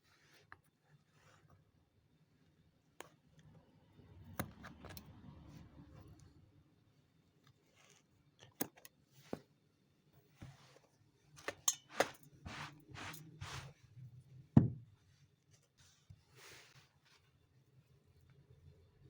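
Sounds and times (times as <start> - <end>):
tools clicking and tapping: 11.4 - 12.6
short scraping strokes: 11.9 - 13.8.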